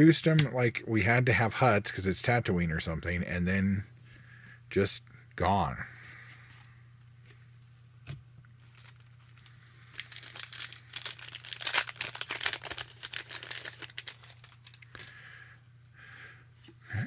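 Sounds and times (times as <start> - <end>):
plastic wrapper tearing and crinkling: 8.6 - 15.2.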